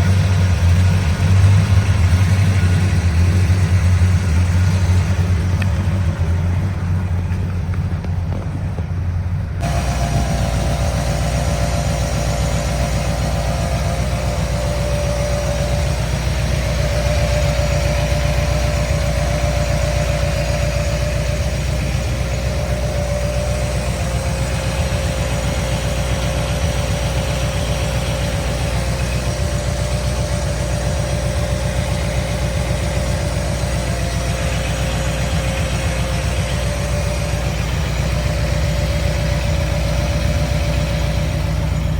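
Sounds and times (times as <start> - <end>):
engine idling with whine: 0.0 - 41.9.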